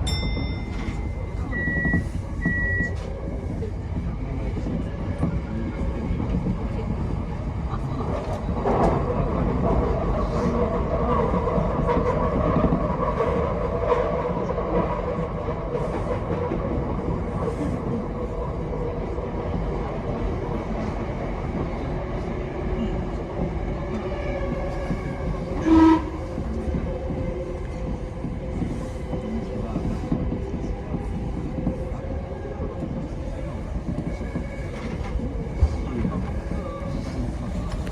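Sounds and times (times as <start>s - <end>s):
train running gear hum: 0.0s - 37.9s
train wheels rumbling on rails: 0.0s - 37.9s.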